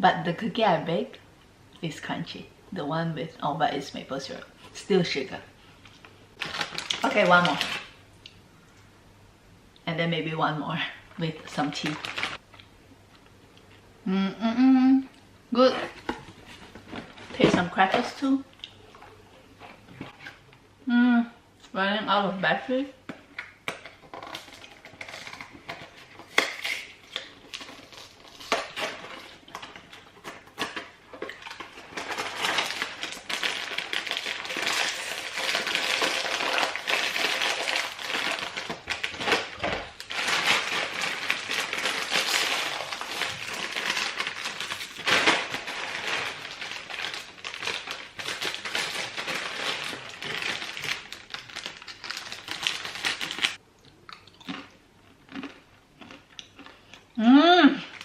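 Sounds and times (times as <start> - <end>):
crunchy chewing: 53.4 - 57.1.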